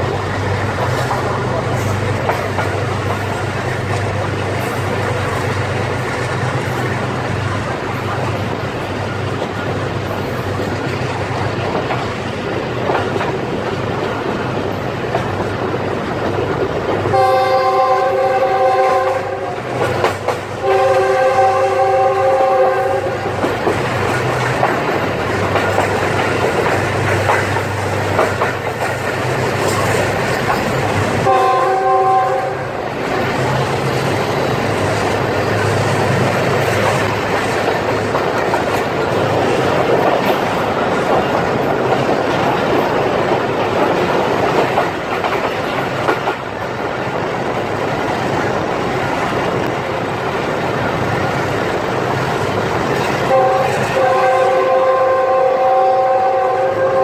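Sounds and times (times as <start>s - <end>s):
train wheels rumbling on rails: 0.0s - 57.0s
locomotive horn blasts: 17.1s - 19.7s, 20.6s - 23.3s, 31.2s - 32.8s, 53.3s - 57.0s.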